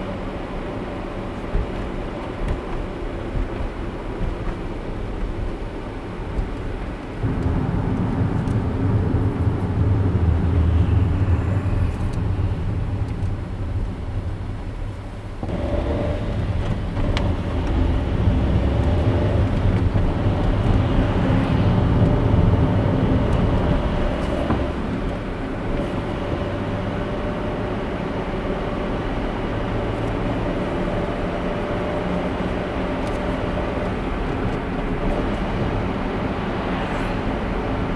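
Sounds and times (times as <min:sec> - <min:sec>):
car engine and tyre road noise: 0:00.0 - 0:37.9.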